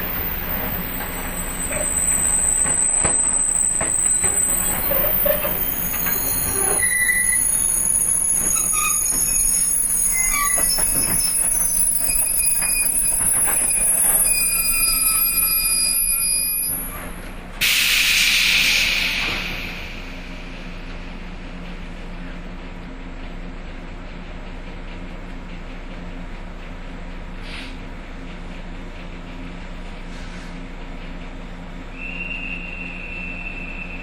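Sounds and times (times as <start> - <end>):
train wheel and brake squeals: 0.0 - 21.0, 31.9 - 34.0
compressed air hiss: 17.6 - 20.0.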